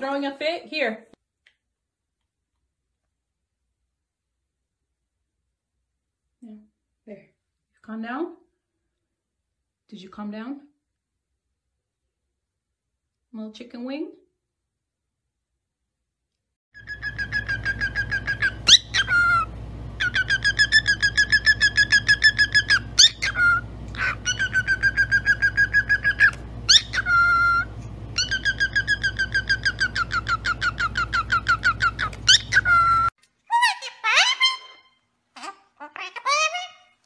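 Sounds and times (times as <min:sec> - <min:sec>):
parrot buzzy call: 0:16.8 - 0:37.0
parrot whistling: 0:16.8 - 0:37.0.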